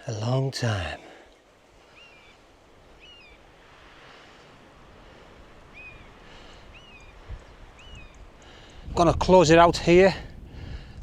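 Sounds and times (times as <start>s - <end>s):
wind through trees: 0.0s - 11.0s
bird chirping: 1.9s - 3.5s, 5.6s - 8.9s.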